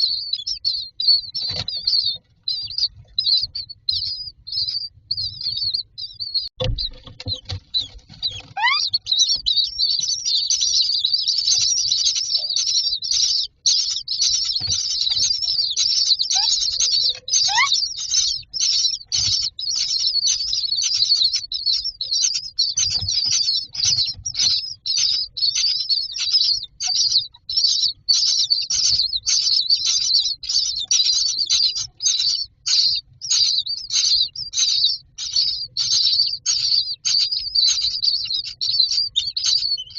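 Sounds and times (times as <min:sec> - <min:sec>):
chicks begging calls: 0:00.0 - 0:39.9
thump: 0:06.6 - 0:07.6.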